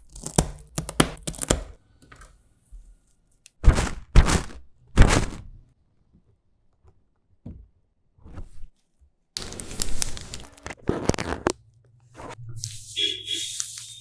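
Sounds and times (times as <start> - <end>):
snack packaging tearing and crinkling: 0.0 - 1.8, 3.5 - 5.5, 9.4 - 11.6, 12.6 - 14.0.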